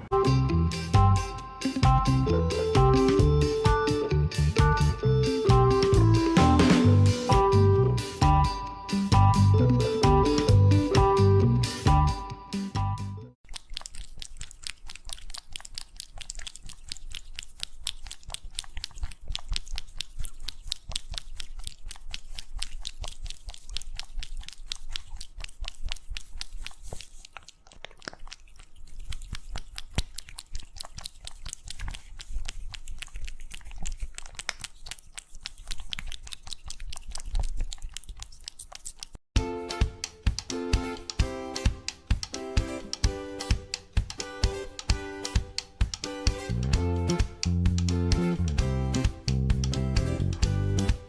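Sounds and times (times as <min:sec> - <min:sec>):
pet chewing crunchy food: 0:13.4 - 0:51.0.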